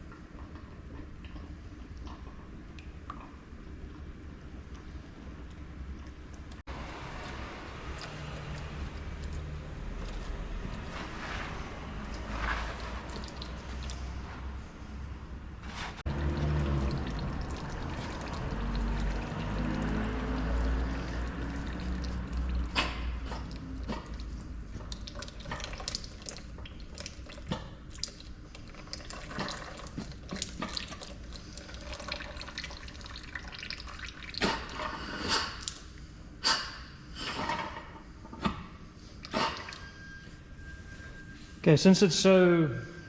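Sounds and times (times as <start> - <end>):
oil pouring into a container: 16.1 - 22.6, 24.9 - 34.4.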